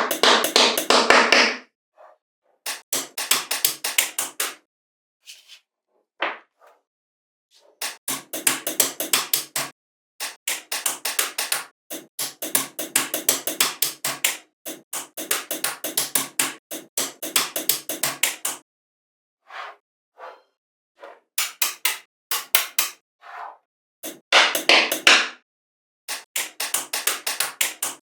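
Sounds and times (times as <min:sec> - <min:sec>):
rapid sharp taps: 0:00.0 - 0:01.6, 0:07.8 - 0:18.6, 0:24.0 - 0:25.4, 0:26.1 - 0:28.0.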